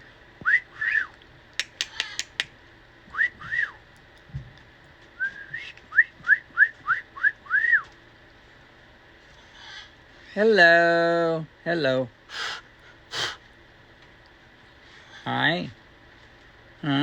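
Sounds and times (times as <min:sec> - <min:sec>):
sharp clicks: 0:01.6 - 0:02.6
short whistled notes: 0:03.2 - 0:03.8, 0:05.2 - 0:07.9.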